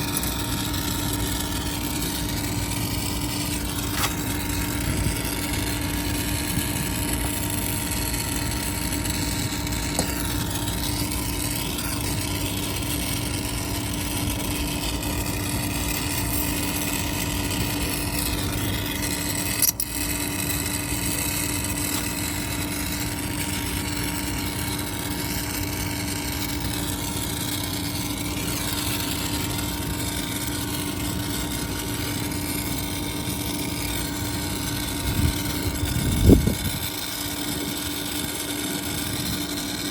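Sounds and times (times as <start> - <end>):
machine motor humming: 0.0 - 39.9
sharp click: 19.6 - 19.9.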